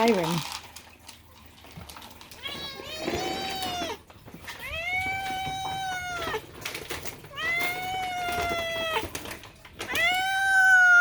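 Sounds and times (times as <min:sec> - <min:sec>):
cat meowing loudly: 0:04.6 - 0:06.4, 0:07.3 - 0:09.2, 0:09.9 - 0:11.0.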